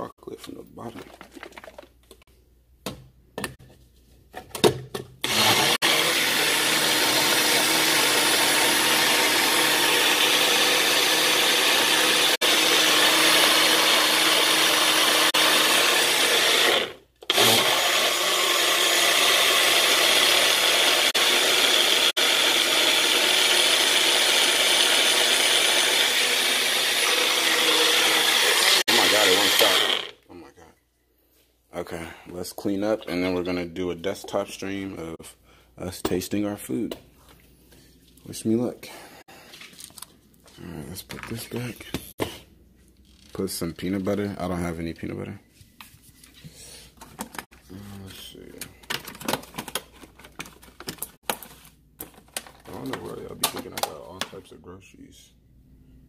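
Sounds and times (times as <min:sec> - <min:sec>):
blender running: 0:05.2 - 0:30.2.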